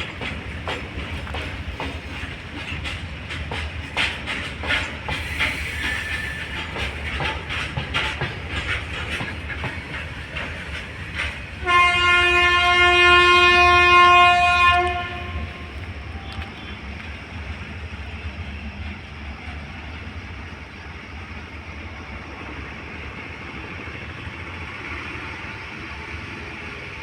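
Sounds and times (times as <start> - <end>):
train wheels clattering on rails: 0.0 - 27.0
train horn blast: 11.6 - 16.9.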